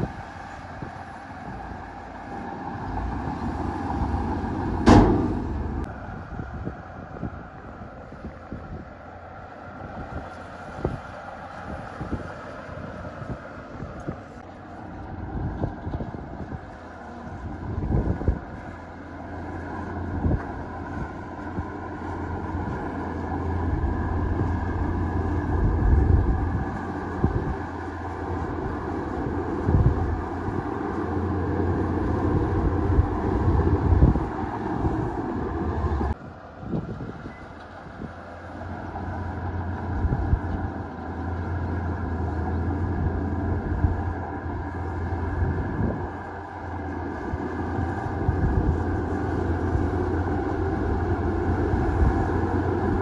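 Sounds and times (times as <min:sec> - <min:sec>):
heavy diesel machinery working: 0:00.0 - 0:53.0
metal knocks and clanks: 0:04.7 - 0:05.9.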